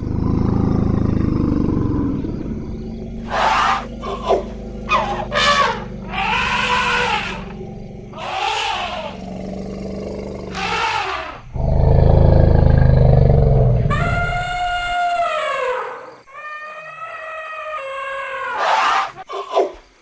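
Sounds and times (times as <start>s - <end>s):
elephant deep rumble: 0.0s - 14.9s
elephants moaning calls: 0.0s - 19.6s
elephant trumpeting: 3.2s - 9.3s, 10.5s - 11.5s.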